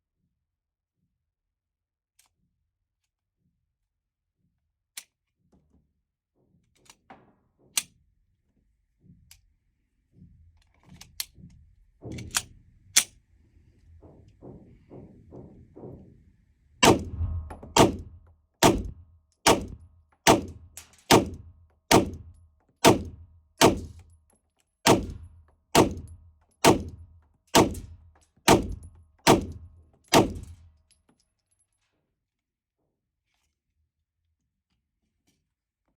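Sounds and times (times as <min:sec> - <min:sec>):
faint scattered gunshots: 0:16.8 - 0:22.2
pistol shots: 0:16.8 - 0:22.2, 0:22.8 - 0:24.0, 0:24.9 - 0:27.0, 0:27.6 - 0:30.6.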